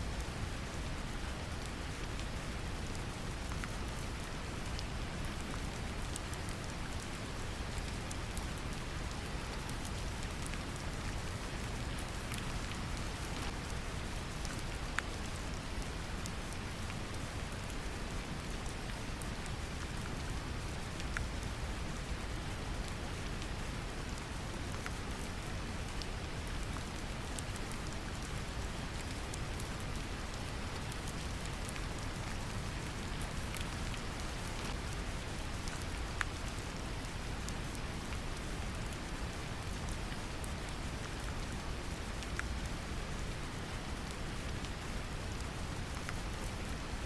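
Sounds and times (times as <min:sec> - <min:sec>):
gentle rain: 0:00.0 - 0:47.0.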